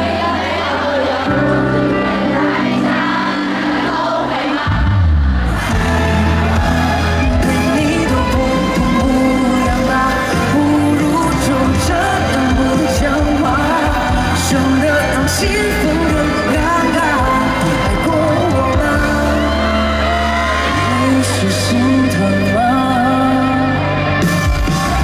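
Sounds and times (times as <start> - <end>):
live pop band playing: 0.0 - 25.0
person singing: 5.5 - 25.0.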